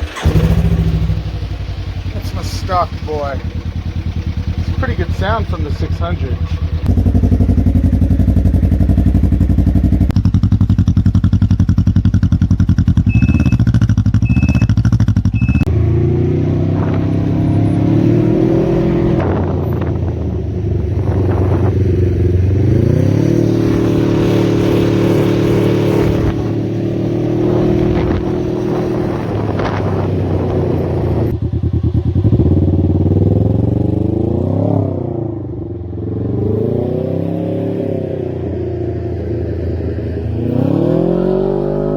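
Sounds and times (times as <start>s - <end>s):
motorcycle engine revving: 0.0s - 41.9s
short high beeps: 13.0s - 15.7s.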